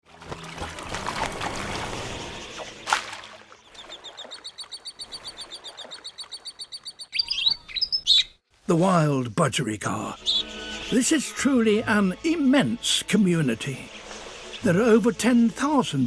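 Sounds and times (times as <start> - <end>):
bird chirps: 2.0 - 8.4, 10.1 - 11.3.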